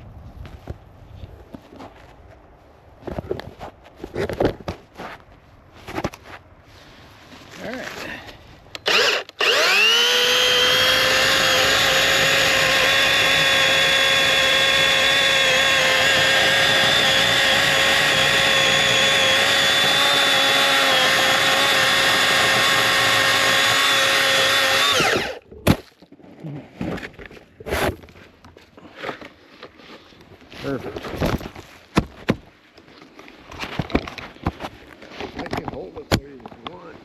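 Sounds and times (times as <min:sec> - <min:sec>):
electric chainsaw whine: 0:08.8 - 0:25.4.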